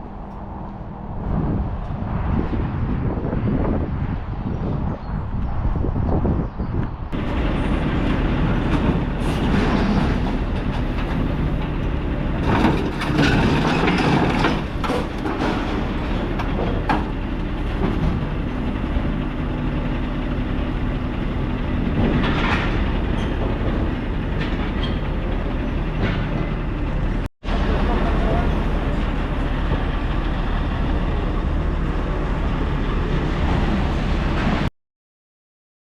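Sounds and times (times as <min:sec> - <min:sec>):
lorry engine running: 0:07.2 - 0:34.7.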